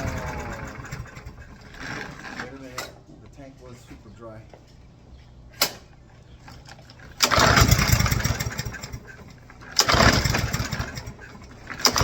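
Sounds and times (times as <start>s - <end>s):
lawnmower engine pull-starting: 0.0s - 3.0s, 6.4s - 12.0s.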